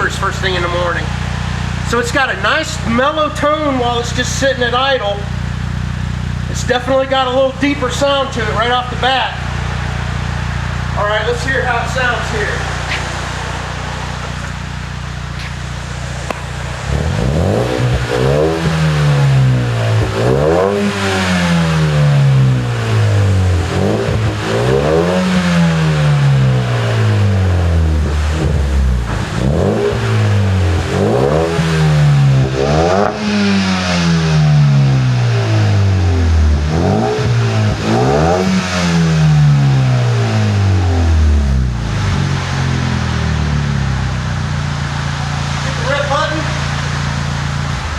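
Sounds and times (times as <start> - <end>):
car engine idling and revving: 0.0 - 47.9.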